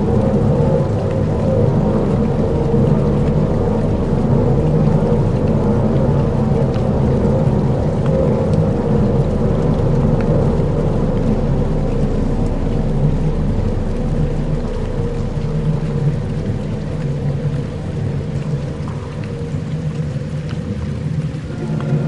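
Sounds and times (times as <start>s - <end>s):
low rumbling drone: 0.0s - 22.0s
rain-like hiss: 0.0s - 22.0s.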